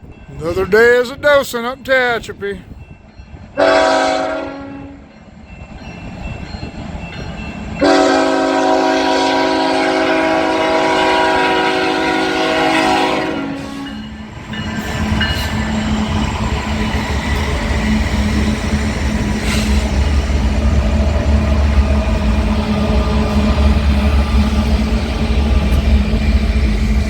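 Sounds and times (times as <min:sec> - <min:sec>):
train rumble: 0:00.0 - 0:27.0
locomotive air horn blast: 0:03.6 - 0:05.0, 0:07.8 - 0:14.0.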